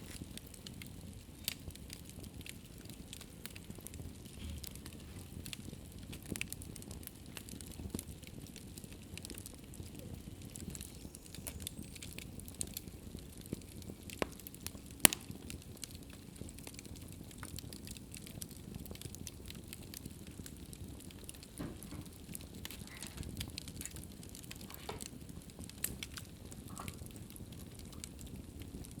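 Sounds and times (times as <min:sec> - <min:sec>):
low rush of flames: 0:00.0 - 0:29.0
wood fire crackling: 0:00.0 - 0:29.0
sharp pop of fire: 0:10.6 - 0:12.2, 0:14.1 - 0:16.0.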